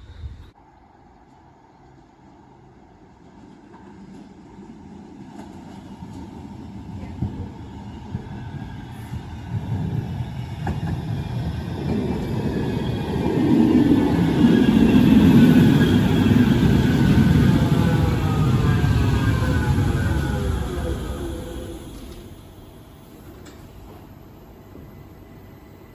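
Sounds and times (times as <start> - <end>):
tram wheels rumbling on rails: 1.9 - 25.9
tram motor whine: 7.5 - 25.9.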